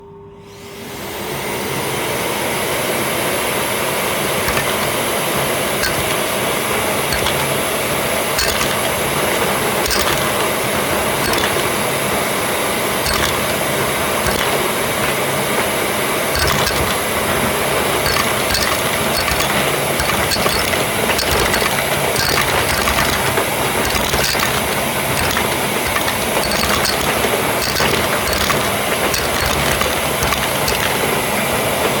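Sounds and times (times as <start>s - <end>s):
dense clicking and clattering: 4.4s - 11.9s, 13.0s - 14.7s, 16.4s - 31.3s.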